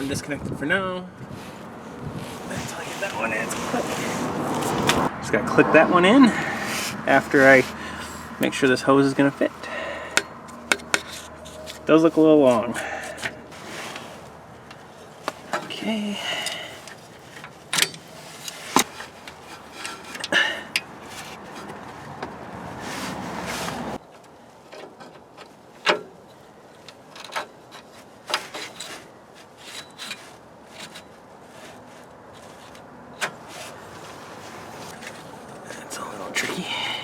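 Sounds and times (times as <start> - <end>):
hands fitting plastic hose: 9.7 - 11.9.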